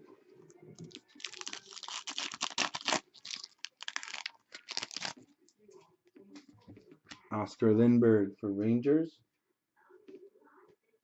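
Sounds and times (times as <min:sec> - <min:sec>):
cards and plastic crinkling: 0:00.8 - 0:05.2.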